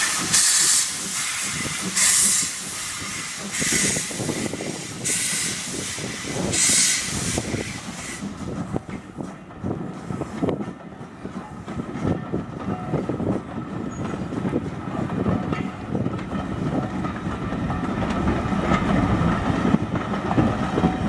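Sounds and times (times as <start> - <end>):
steam engine hiss bursts: 0.0 - 8.5.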